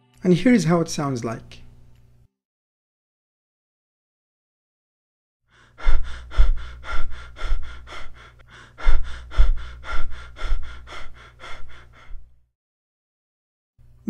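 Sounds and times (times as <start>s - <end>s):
quick sharp breaths: 5.5s - 12.4s
low hum: 5.6s - 12.4s.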